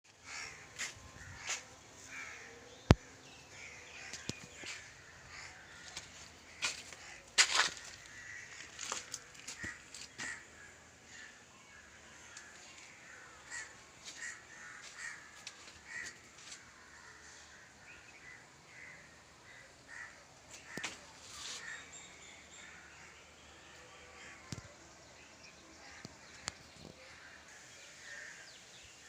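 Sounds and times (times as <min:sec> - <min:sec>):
birds calling: 0:00.0 - 0:11.4.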